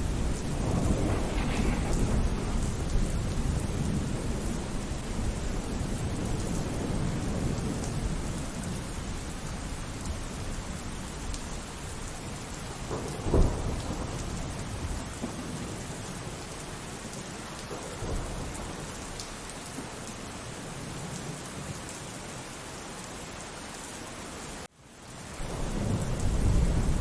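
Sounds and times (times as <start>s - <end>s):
sharp thunderclap: 0.0s - 8.1s, 12.8s - 15.7s, 25.4s - 27.0s
low thunder rumbles: 0.0s - 19.2s, 25.4s - 27.0s
steady rainfall: 0.0s - 27.0s.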